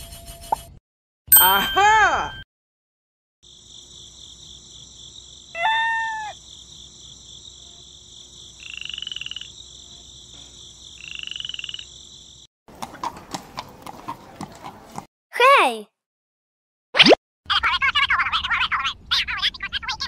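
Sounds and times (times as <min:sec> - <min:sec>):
trilled frog croaks: 0:08.6 - 0:09.6, 0:11.0 - 0:12.1.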